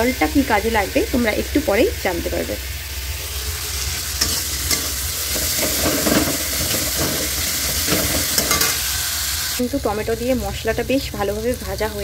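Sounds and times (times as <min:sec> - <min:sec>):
masala sizzling in a pan: 0:00.0 - 0:12.0
metal spatula scraping a pan: 0:03.3 - 0:09.0.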